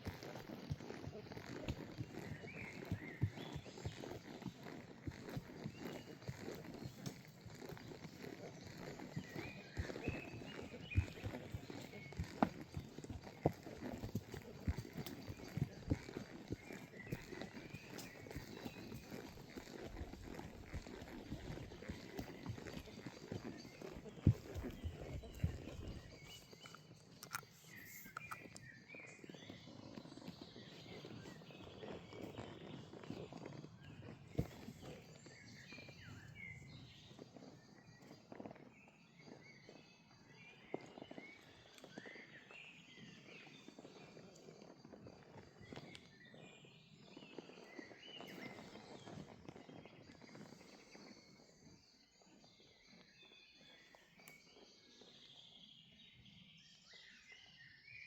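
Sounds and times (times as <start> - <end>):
horse walking on forest floor: 0.0 - 55.8
birds chirping: 1.6 - 4.6, 5.3 - 37.7.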